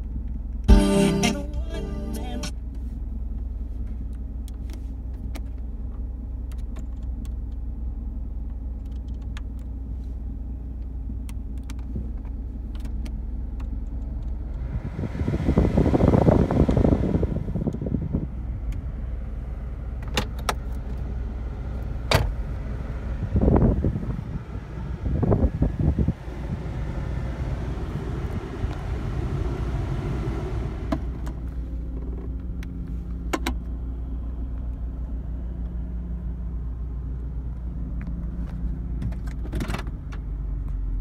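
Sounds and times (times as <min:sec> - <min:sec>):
car engine idling low hum: 0:00.0 - 0:41.0
climate control blower rushing: 0:14.6 - 0:18.9, 0:23.2 - 0:31.6.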